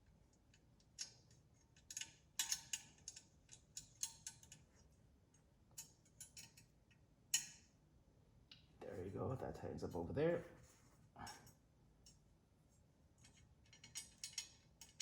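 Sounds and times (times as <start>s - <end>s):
allen wrench clicking on screw: 1.8s - 4.6s, 13.3s - 15.0s.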